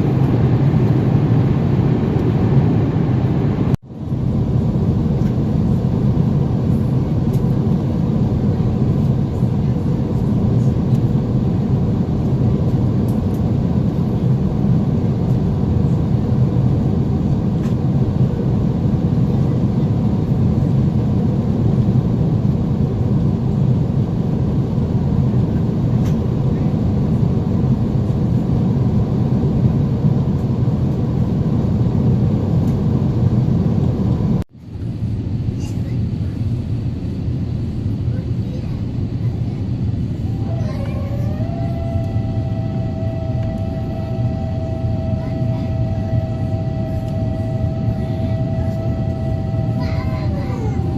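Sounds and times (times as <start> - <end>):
airliner rumble: 0.0 - 50.9.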